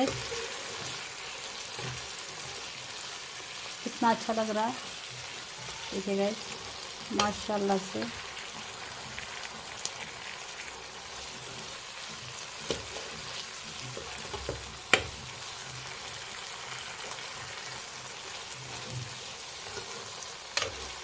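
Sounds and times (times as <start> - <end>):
food sizzling in a pan: 0.0 - 21.0
metal spoon knocking on pan: 14.3 - 15.2.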